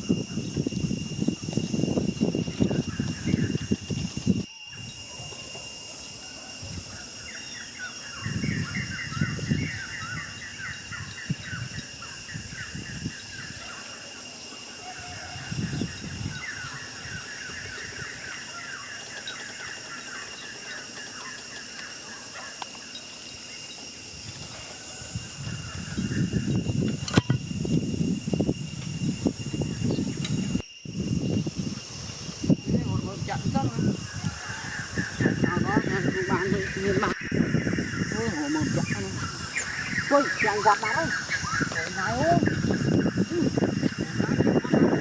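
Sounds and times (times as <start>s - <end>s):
bird chirping: 7.0s - 14.2s, 14.9s - 24.0s, 33.6s - 44.0s.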